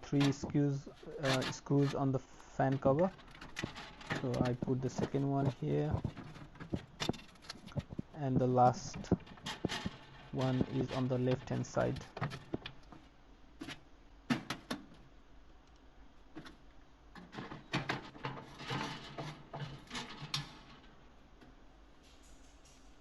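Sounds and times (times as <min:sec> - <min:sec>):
metal oven parts clicking: 0:00.0 - 0:02.0, 0:02.7 - 0:08.0.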